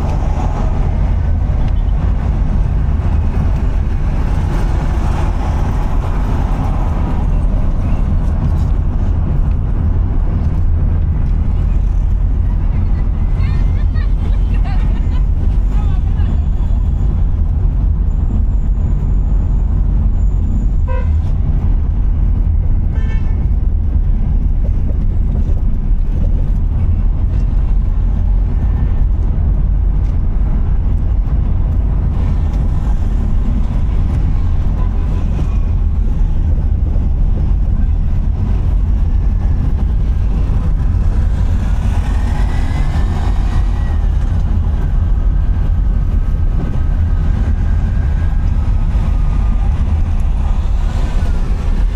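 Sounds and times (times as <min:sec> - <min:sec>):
car road and wind rumble: 0:00.0 - 0:51.9
gliding traffic sounds: 0:00.0 - 0:51.9
vehicle horn toots: 0:20.8 - 0:21.3, 0:22.9 - 0:23.4.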